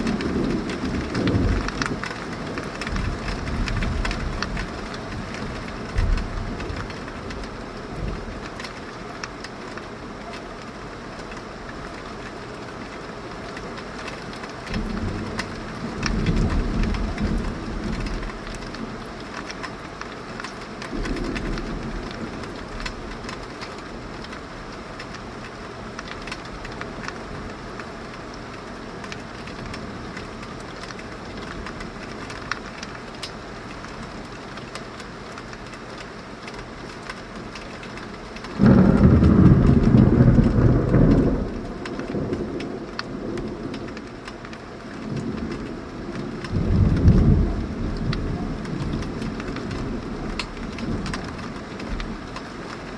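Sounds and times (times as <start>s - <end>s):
loud thunderclap: 0.0s - 7.4s, 38.6s - 44.0s, 45.1s - 51.4s
low rumbling thunder: 0.0s - 8.6s, 14.7s - 19.1s, 20.9s - 23.4s, 38.6s - 52.3s
heavy rain falling: 0.0s - 52.9s.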